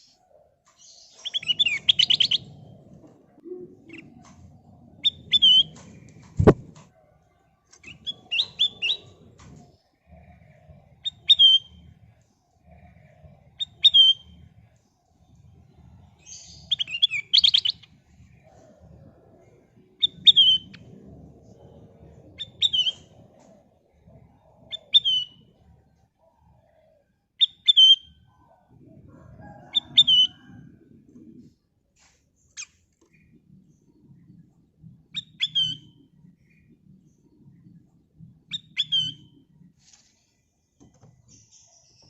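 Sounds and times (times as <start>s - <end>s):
bulbul calling: 0.8s - 2.7s, 5.0s - 6.7s.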